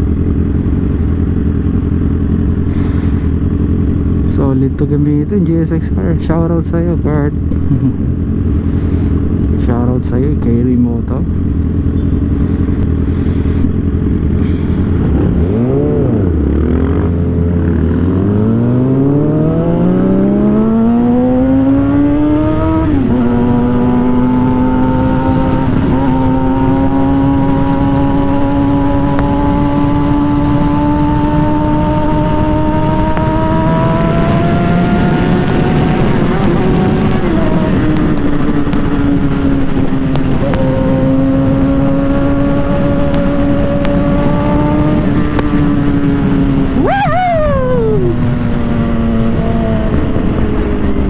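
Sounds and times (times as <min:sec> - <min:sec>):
motorcycle engine accelerating: 0:00.0 - 0:51.0.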